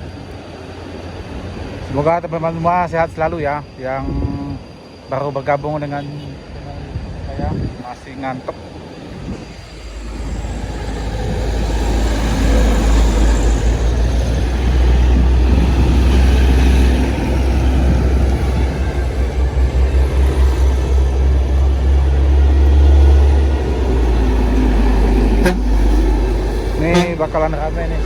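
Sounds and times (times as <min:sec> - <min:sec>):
diesel trucks passing: 0:08.6 - 0:28.0.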